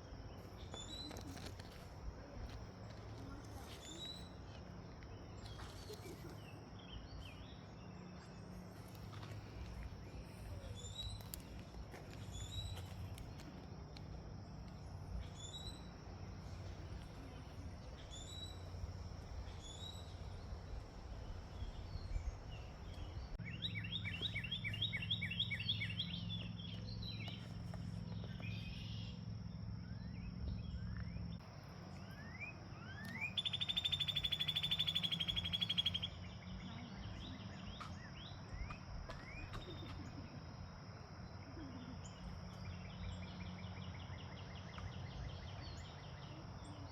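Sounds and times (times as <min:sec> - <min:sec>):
songbird chirp: 0:00.0 - 0:46.9
bird trill: 0:32.0 - 0:36.6.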